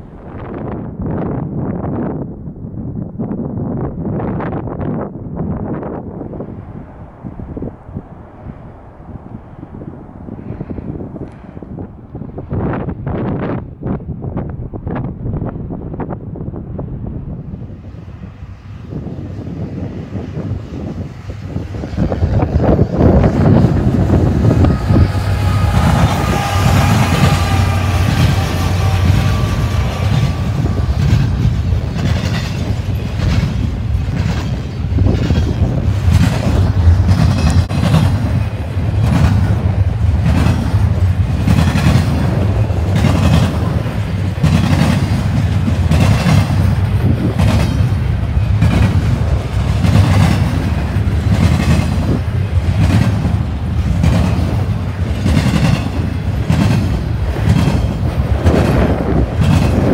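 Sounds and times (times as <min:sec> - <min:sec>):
freight train wheels rumbling: 0:00.0 - 0:59.9
wheels clacking over rail joints: 0:22.4 - 0:59.9.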